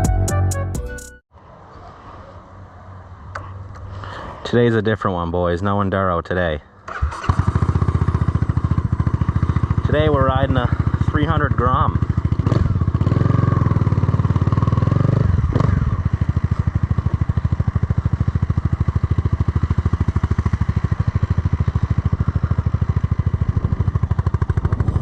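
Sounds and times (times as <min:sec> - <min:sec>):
motorcycle engine running: 0:06.9 - 0:25.0.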